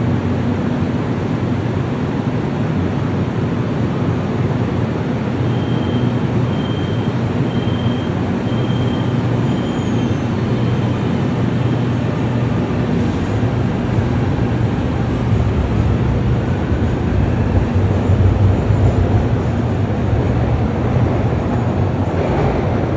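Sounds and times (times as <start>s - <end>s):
train rumbling: 0.0s - 22.9s
short high beeps: 5.5s - 10.0s.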